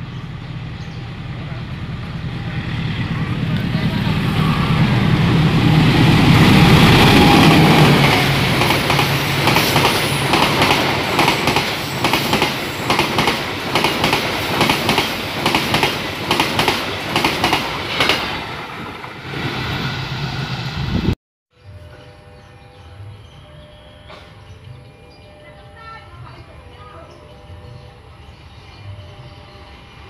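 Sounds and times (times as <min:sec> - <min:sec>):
locomotive engine drone: 0:00.0 - 0:13.8
wheels clacking over rail joints: 0:01.4 - 0:19.4.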